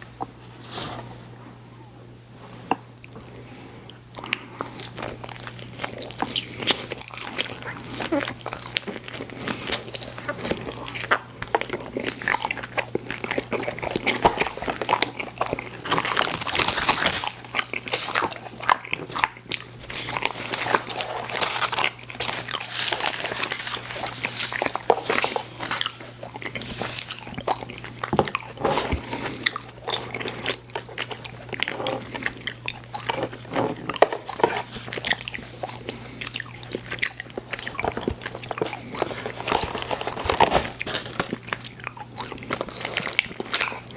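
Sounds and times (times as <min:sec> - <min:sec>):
chewing candy: 0:03.0 - 0:43.9.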